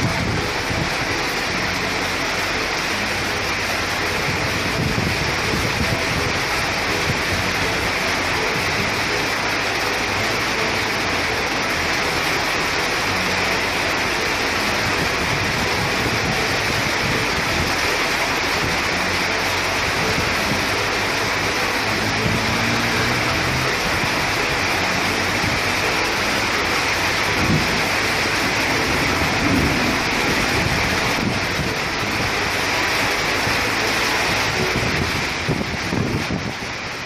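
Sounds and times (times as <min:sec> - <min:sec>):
heavy rain pouring: 0:00.0 - 0:37.0
traffic passing: 0:00.0 - 0:37.0.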